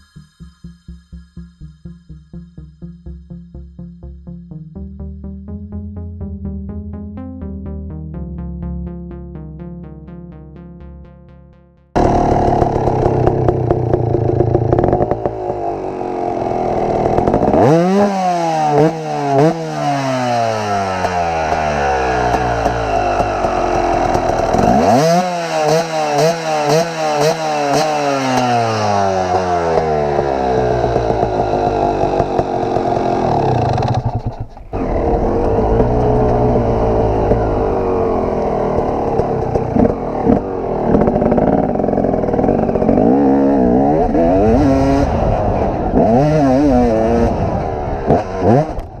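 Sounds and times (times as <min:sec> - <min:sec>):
dirt bike engine revving: 0:12.0 - 0:49.0.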